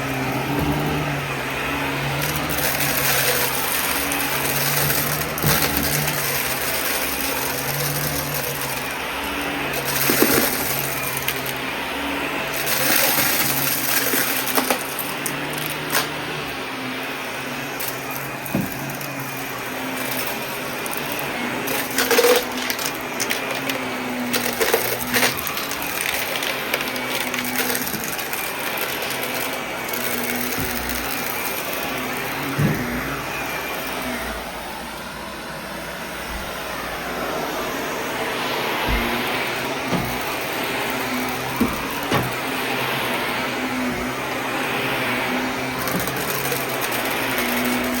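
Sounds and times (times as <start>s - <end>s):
vacuum cleaner running: 0.0s - 48.0s
debris clicking and rattling: 0.1s - 11.7s, 12.4s - 16.2s, 17.8s - 33.2s, 38.9s - 42.6s, 45.6s - 48.0s.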